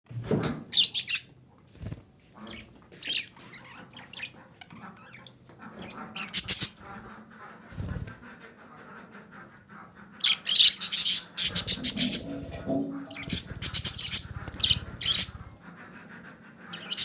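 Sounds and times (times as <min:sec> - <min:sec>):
budgerigar chirping and squawking: 0:00.8 - 0:01.3, 0:02.4 - 0:07.1, 0:10.1 - 0:15.6, 0:16.6 - 0:17.0.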